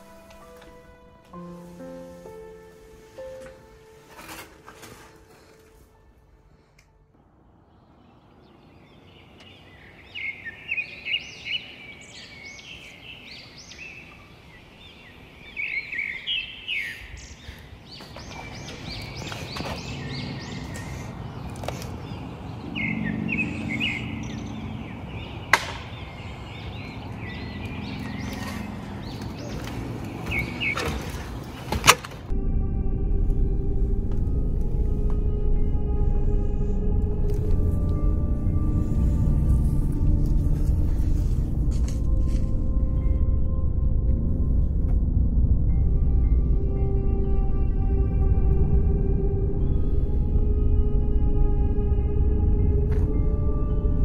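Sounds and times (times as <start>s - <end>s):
songbirds chirping: 0.0s - 32.4s, 33.3s - 44.8s
low background rumble: 32.2s - 54.0s.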